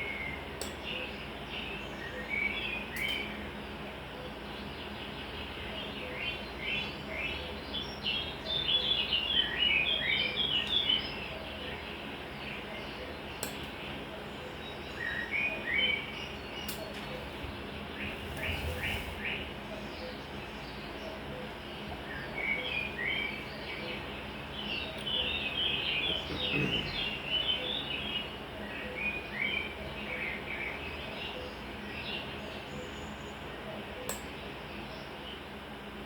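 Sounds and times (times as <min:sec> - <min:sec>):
low background hum: 0:00.0 - 0:36.0
small birds chirping: 0:00.0 - 0:36.0
sharp click: 0:13.4 - 0:13.8, 0:34.1 - 0:34.3.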